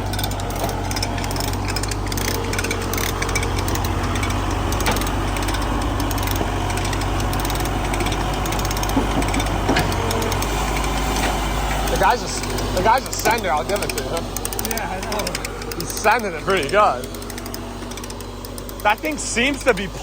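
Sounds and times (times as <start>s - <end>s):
heavy engine running under load: 0.0s - 20.0s
knocks and clanks: 0.0s - 20.0s.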